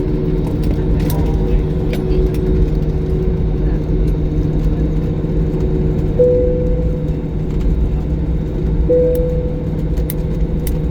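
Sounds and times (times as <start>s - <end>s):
airliner engine rumble: 0.0s - 10.9s.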